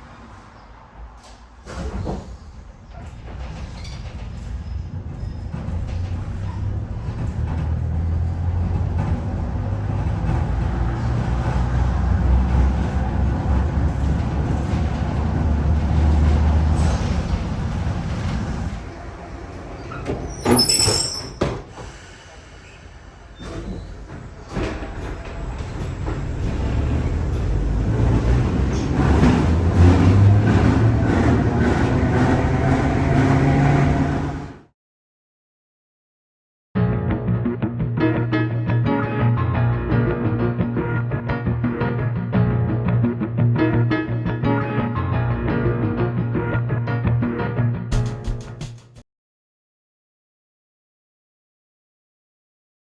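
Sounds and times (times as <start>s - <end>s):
tram rumbling: 0.0s - 34.7s.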